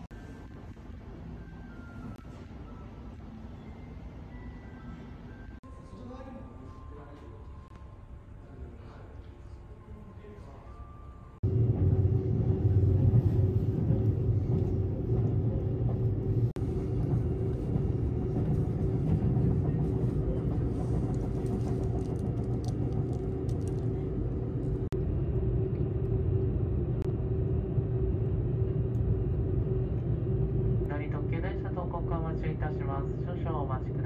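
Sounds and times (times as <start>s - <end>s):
train running rumble and hum: 11.3s - 34.0s.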